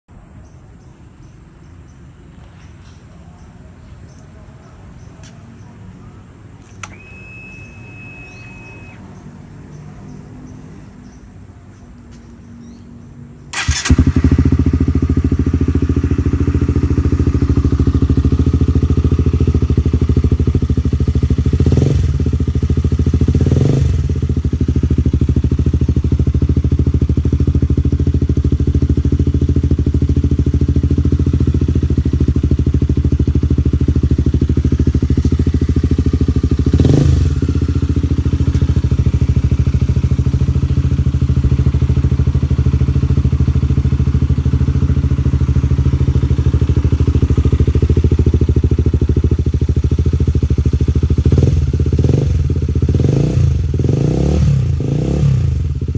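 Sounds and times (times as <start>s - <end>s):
motorcycle engine starting and idling: 2.1s - 55.9s.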